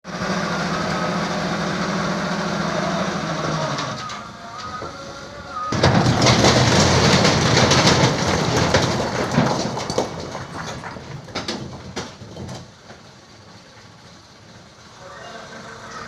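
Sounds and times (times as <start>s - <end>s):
rocks tumbling from dump truck: 3.2s - 14.9s.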